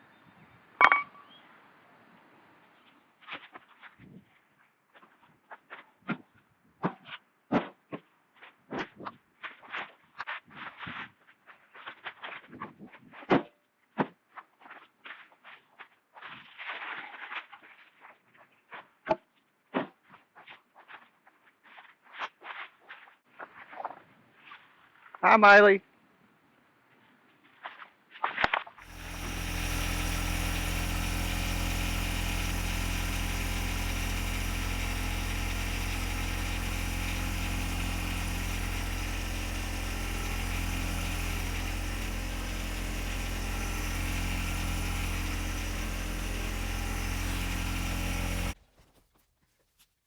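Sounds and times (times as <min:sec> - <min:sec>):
small engine idling: 0:28.8 - 0:48.6.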